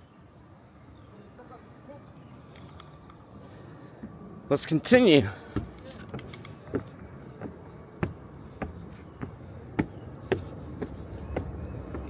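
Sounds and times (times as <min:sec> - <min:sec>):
footsteps climbing stairs: 0:05.5 - 0:12.0.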